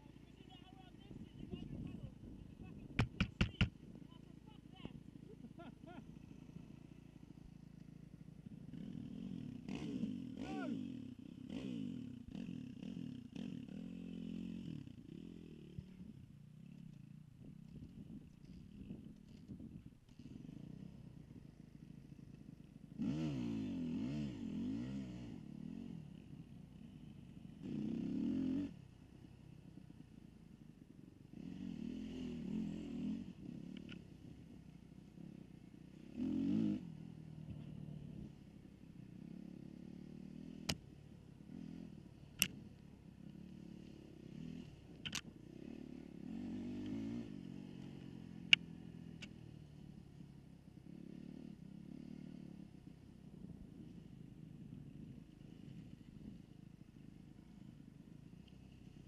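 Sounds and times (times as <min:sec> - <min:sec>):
dirt bike engine revving: 0:08.1 - 0:16.0, 0:22.9 - 0:26.1, 0:27.5 - 0:28.8, 0:35.9 - 0:38.4, 0:43.5 - 0:48.6.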